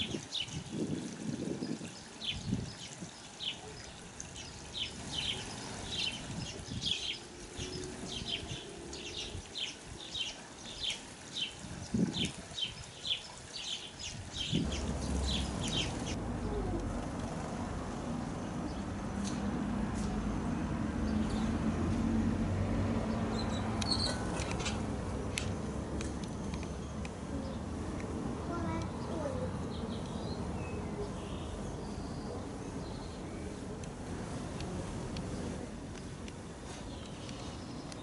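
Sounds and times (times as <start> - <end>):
sparrow chirping: 1.6 - 16.7, 23.3 - 24.8.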